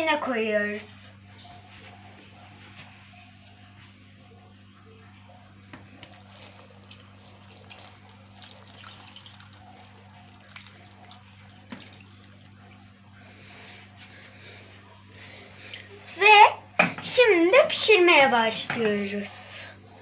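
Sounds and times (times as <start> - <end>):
low steady hum: 0.0 - 20.0
liquid trickling into a pot: 5.8 - 13.7.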